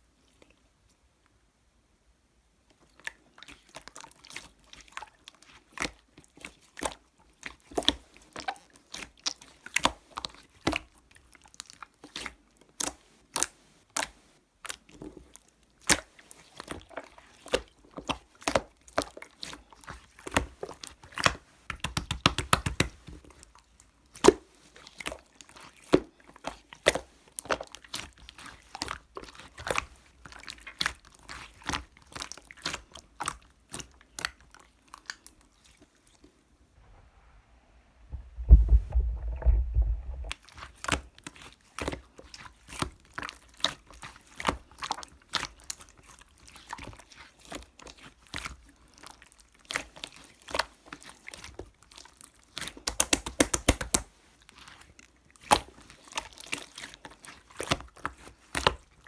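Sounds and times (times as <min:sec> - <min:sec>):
slime squeezed wet pops: 0:52.8 - 0:54.0.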